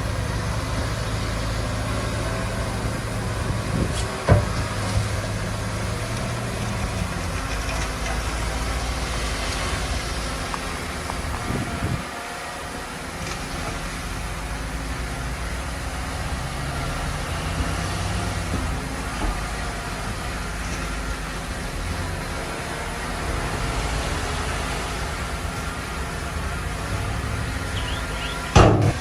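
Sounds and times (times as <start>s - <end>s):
heavy diesel engine running: 0.0s - 29.0s
sharp knock: 28.5s - 29.0s.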